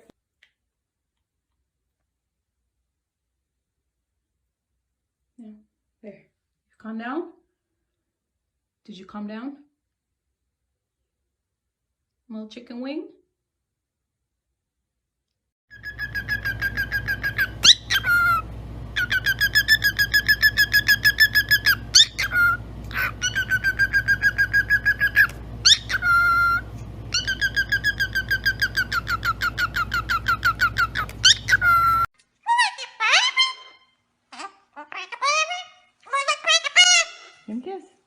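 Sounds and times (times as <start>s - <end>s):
parrot whistling a pulsing trill: 15.7s - 34.0s.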